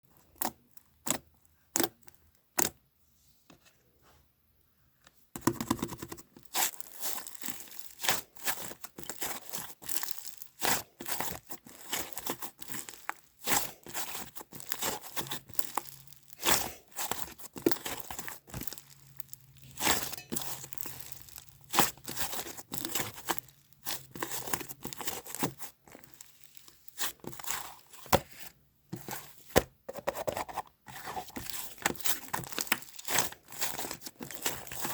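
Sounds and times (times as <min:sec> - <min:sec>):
paper or plastic crinkling: 0:06.4 - 0:29.6, 0:30.3 - 0:34.9.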